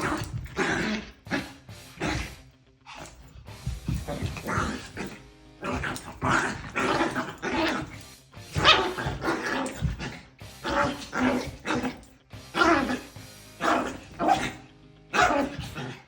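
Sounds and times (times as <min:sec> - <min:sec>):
small dog growling: 0:00.0 - 0:03.3, 0:04.0 - 0:08.0
small dog barking: 0:05.6 - 0:12.0, 0:12.6 - 0:16.0.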